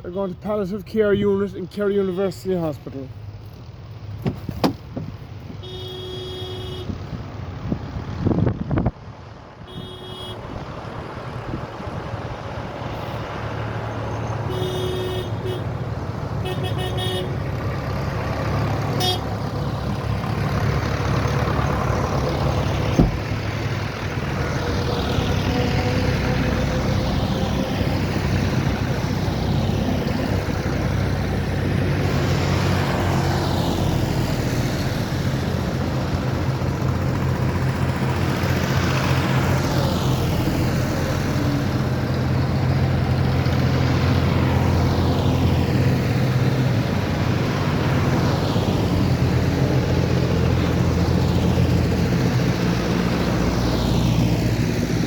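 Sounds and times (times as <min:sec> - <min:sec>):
tractor engines driving past: 0:00.0 - 0:55.0
horn tooting: 0:05.5 - 0:07.1, 0:09.6 - 0:10.6, 0:14.4 - 0:15.8, 0:16.4 - 0:17.5, 0:18.9 - 0:19.4.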